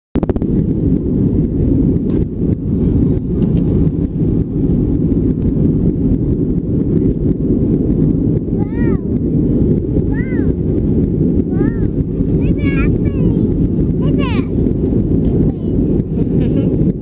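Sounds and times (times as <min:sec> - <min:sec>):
airplane cabin engine rumble: 0:00.2 - 0:17.0.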